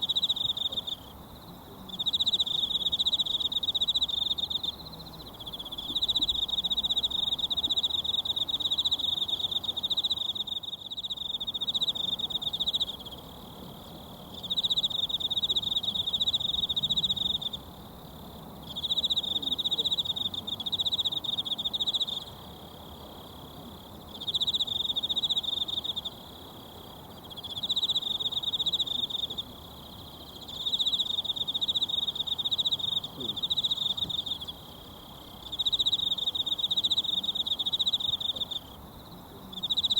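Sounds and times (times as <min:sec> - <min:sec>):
insect trilling: 0:24.1 - 0:39.9.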